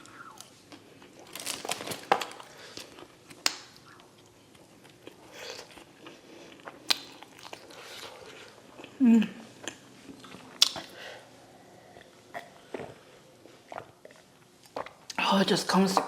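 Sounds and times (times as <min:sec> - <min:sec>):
chewing fries: 0:00.0 - 0:11.2.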